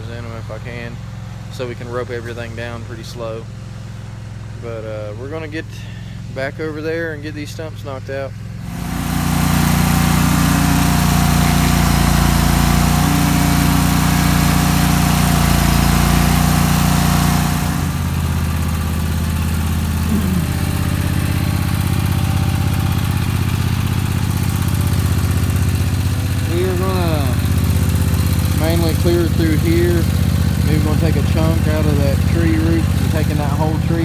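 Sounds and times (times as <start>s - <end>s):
stump grinder engine running: 8.5s - 34.0s.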